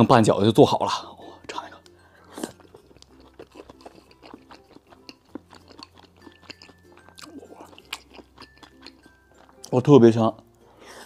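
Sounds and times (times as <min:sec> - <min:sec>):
mouth and teeth clicks: 0:01.8 - 0:09.7
person chewing food: 0:01.8 - 0:09.7.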